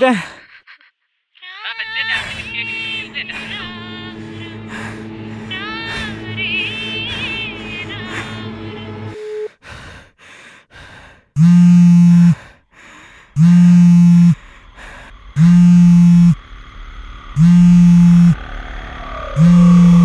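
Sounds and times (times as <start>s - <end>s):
short tone: 9.1s - 9.5s, 11.4s - 12.4s, 13.4s - 14.4s, 15.4s - 16.4s, 17.4s - 18.4s, 19.3s - 20.0s
mobile phone vibrating buzz: 11.4s - 12.5s, 13.4s - 14.4s, 15.4s - 16.4s, 17.4s - 18.4s, 19.3s - 20.0s.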